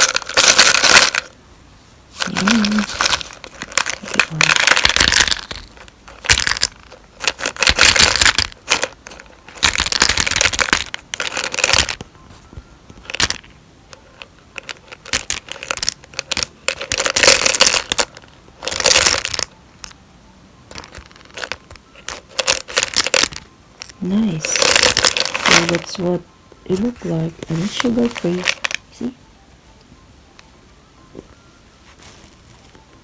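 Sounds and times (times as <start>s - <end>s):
packaging crinkling: 2.2s - 12.0s, 14.1s - 19.5s, 20.7s - 23.4s, 24.4s - 25.9s.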